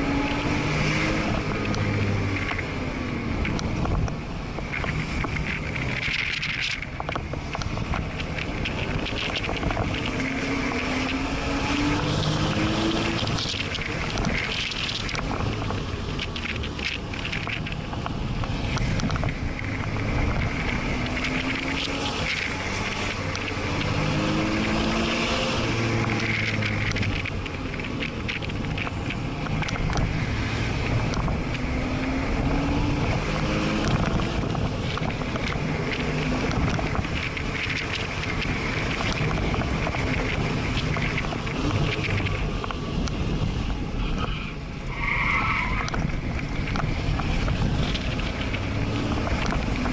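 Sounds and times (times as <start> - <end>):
wind and tyre noise: 0.0 - 49.9
car engine from inside cabin: 7.1 - 44.0.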